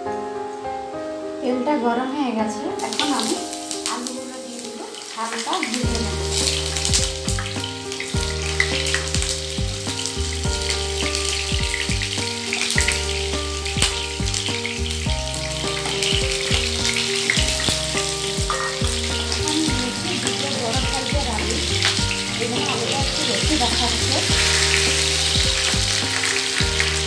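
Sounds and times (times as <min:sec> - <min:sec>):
background music: 0:00.0 - 0:27.0
potatoes sizzling in hot oil: 0:02.8 - 0:27.0.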